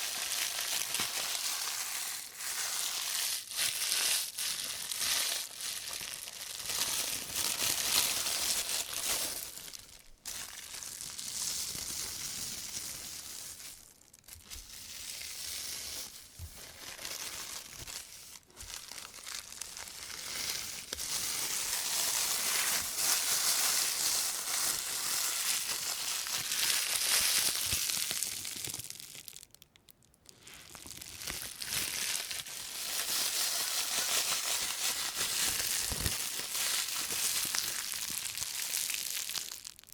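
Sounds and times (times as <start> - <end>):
plastic bag crinkling: 0.0 - 39.9.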